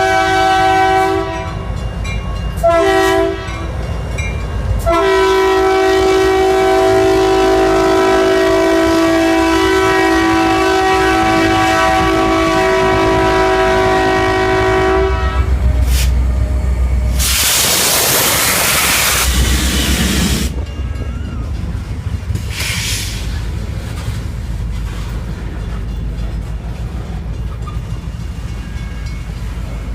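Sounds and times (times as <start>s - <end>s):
train horn sustained chord: 0.0s - 1.6s, 2.6s - 3.9s, 4.8s - 15.9s
low rumble of passing train: 0.0s - 29.9s
loud burst of hissing: 17.1s - 20.5s, 22.5s - 23.4s.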